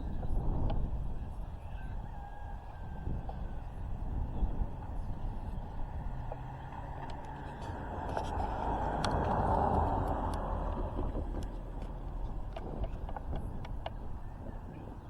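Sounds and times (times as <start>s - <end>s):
vehicle passing by: 4.2s - 13.4s.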